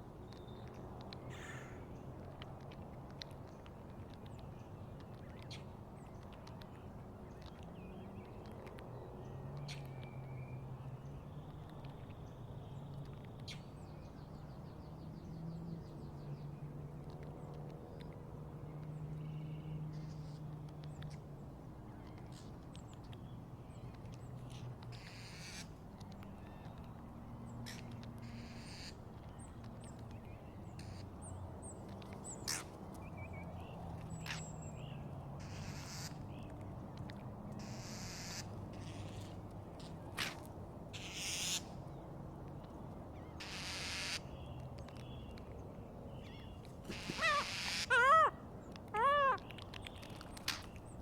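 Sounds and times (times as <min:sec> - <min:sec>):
birds chirping: 0:44.3 - 0:51.0
large bird calling: 0:46.3 - 0:49.6.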